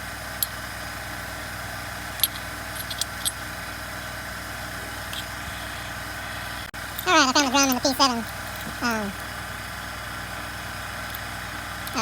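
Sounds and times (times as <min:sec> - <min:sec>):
steady background hum: 0:00.0 - 0:12.0
light clicks and taps of parts: 0:02.2 - 0:03.4.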